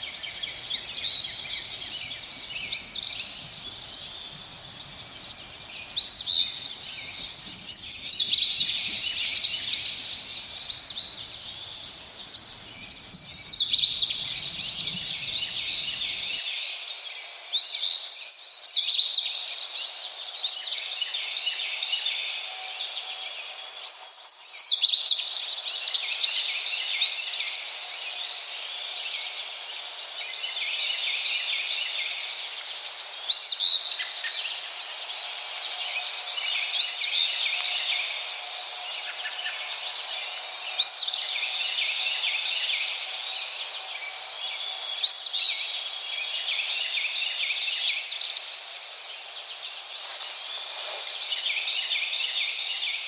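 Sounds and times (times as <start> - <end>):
running water hiss: 0.0 - 16.4, 47.9 - 53.0
songbirds singing: 0.0 - 16.4.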